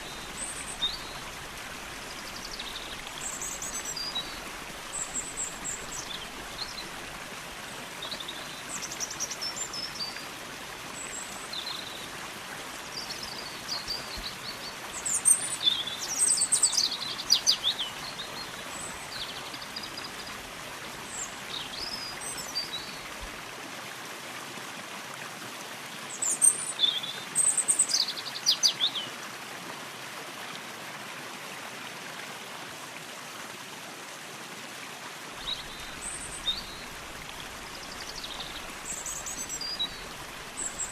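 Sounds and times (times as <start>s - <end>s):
stream water running: 0.0s - 40.9s
small birds chirping: 35.4s - 40.9s.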